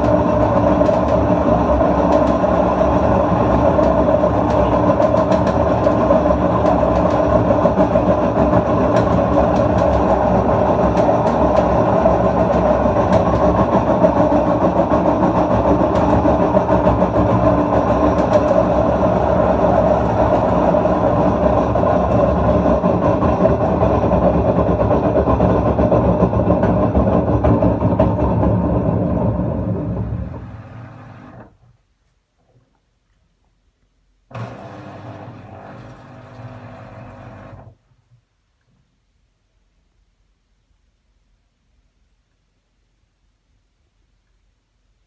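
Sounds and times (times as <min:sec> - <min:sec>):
washing machine rumbling: 0:00.0 - 0:31.8.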